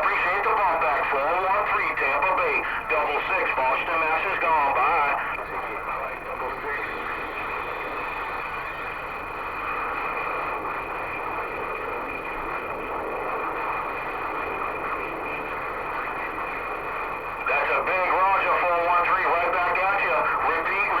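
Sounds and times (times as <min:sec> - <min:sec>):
radio static hiss: 0:00.0 - 0:08.9, 0:09.8 - 0:21.0
thin steady whine: 0:00.0 - 0:21.0.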